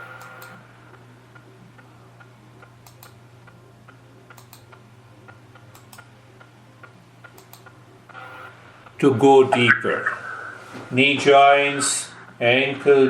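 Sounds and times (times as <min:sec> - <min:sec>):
steady low hum: 0:00.0 - 0:13.0
faint small clicks: 0:00.2 - 0:00.6, 0:01.4 - 0:06.5, 0:07.2 - 0:07.8.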